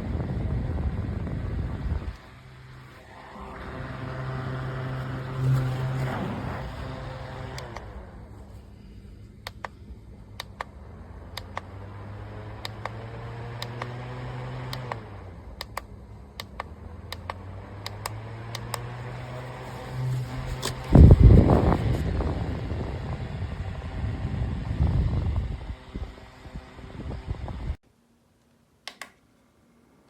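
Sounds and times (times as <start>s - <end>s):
low motor hum: 0.0s - 27.8s
sharp clicks: 7.5s - 7.9s, 9.4s - 9.8s, 10.4s - 11.8s, 12.6s - 13.0s, 13.6s - 14.0s, 14.7s - 19.3s, 28.8s - 29.2s.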